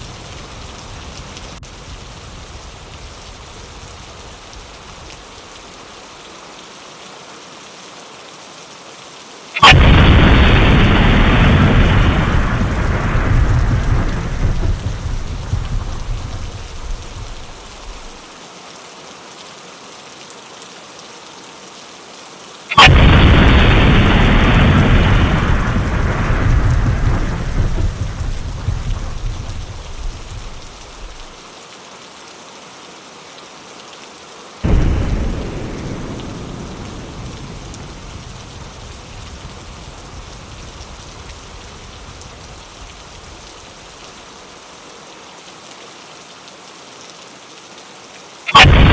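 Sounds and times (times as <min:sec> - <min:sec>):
steady rain: 0:00.0 - 0:48.9
loud thunderclap: 0:09.6 - 0:18.2, 0:22.7 - 0:31.4, 0:34.6 - 0:43.5, 0:48.5 - 0:48.9
thunder rumbling: 0:09.6 - 0:18.2, 0:22.7 - 0:31.4, 0:34.6 - 0:44.0, 0:48.5 - 0:48.9.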